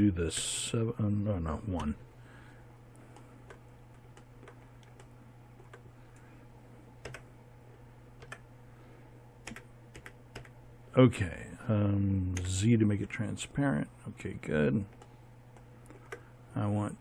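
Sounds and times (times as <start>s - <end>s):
low electrical hum: 0.0s - 17.0s
keyboard and mouse clicks: 3.1s - 5.9s, 7.0s - 7.3s, 8.2s - 8.5s.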